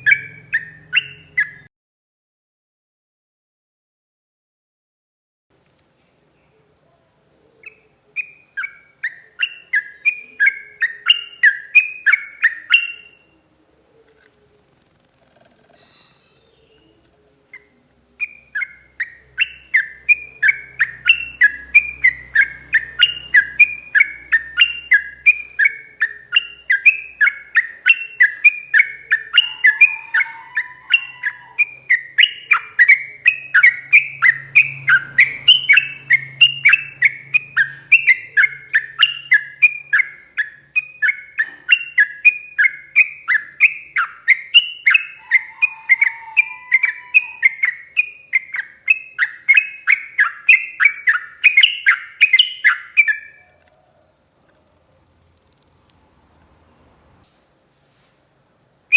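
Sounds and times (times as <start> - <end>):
bird singing whistled notes: 0.0 - 1.7, 7.7 - 13.4, 17.6 - 53.6.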